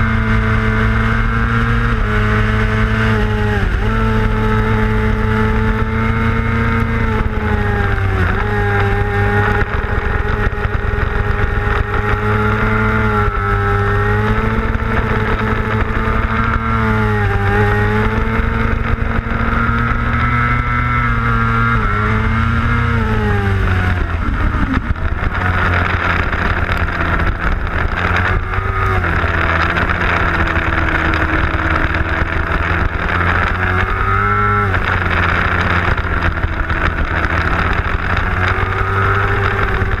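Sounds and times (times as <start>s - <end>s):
motorcycle engine at high revs: 0.0s - 40.0s.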